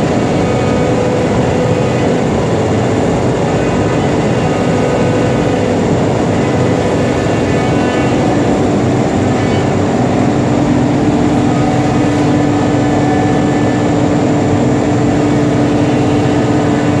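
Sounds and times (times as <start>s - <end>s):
cnc router machine drone: 0.0s - 17.0s.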